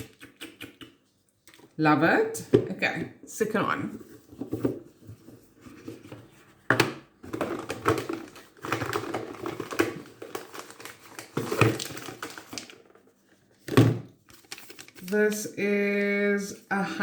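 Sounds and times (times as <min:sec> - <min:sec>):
wrapping paper crinkling: 0:07.5 - 0:13.6, 0:14.2 - 0:15.4.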